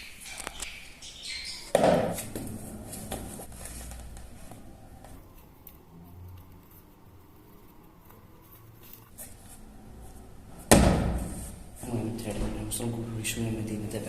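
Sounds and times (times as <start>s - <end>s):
handling and rustling noises: 2.1s - 10.3s.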